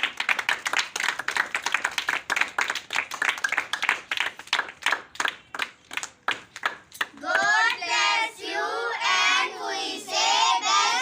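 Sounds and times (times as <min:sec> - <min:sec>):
children clapping hands: 0:00.0 - 0:07.9.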